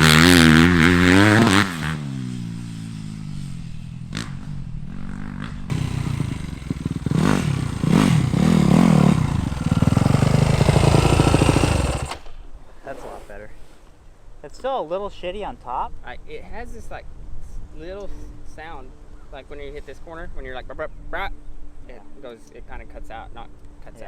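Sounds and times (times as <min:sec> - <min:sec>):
dirt bike engine revving: 0:00.0 - 0:12.3.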